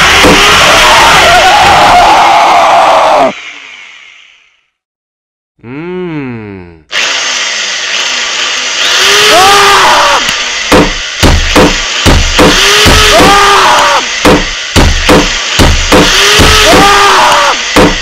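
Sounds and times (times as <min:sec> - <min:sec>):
electronic sawing noise with squeals: 0:00.0 - 0:04.8, 0:06.9 - 0:18.0
kick-drum beat: 0:10.7 - 0:13.4, 0:14.2 - 0:16.9, 0:17.8 - 0:18.0.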